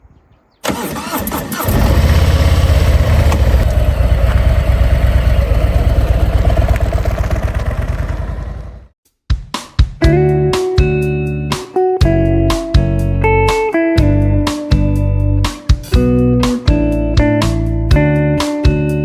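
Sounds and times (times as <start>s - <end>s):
motorcycle starter cranking: 0.6s - 8.8s
motorcycle engine idling: 0.6s - 8.9s.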